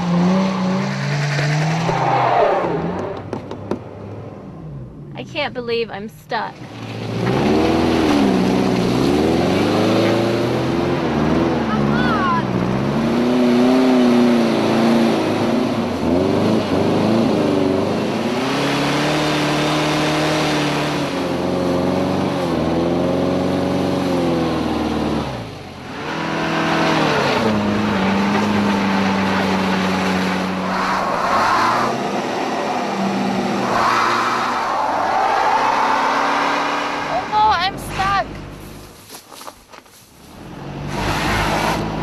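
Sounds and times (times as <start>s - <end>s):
car engine revving: 6.6s - 39.0s.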